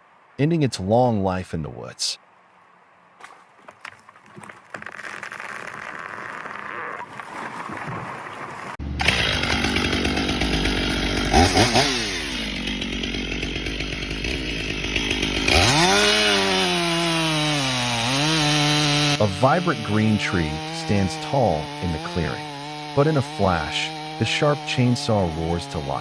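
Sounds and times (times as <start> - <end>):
chainsaw cutting wood: 4.2 - 7.1, 8.7 - 26.0
close chainsaw revving: 8.8 - 26.0.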